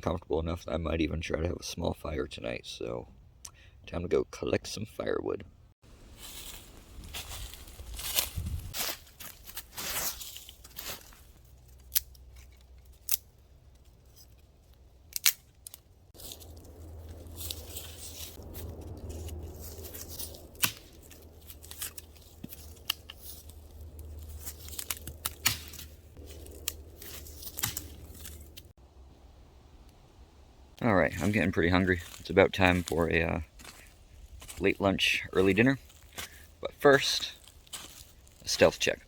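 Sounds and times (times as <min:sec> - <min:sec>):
rustling of brush: 0:05.9 - 0:28.8, 0:31.1 - 0:39.0
dry sticks snapping: 0:07.2 - 0:28.7.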